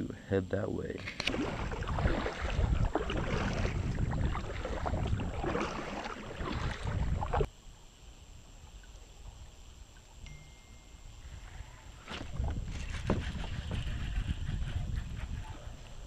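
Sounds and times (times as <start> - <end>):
water splashing against kayak hull: 1.0 - 7.5.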